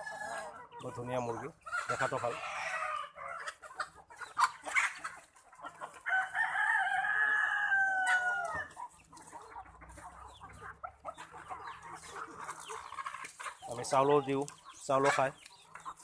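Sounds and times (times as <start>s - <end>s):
hens clucking: 0.0s - 16.0s
rooster crowing: 6.1s - 8.8s.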